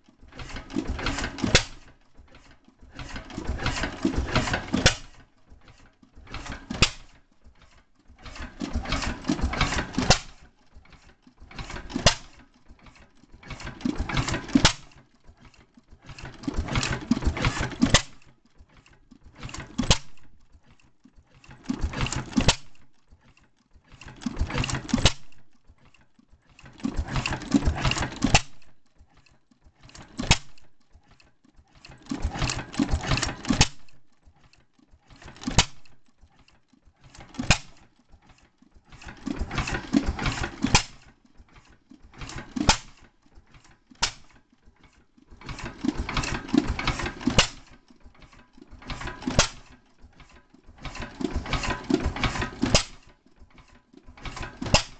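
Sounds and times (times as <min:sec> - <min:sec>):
stationary gas engine firing: 0:48.8 - 0:49.7.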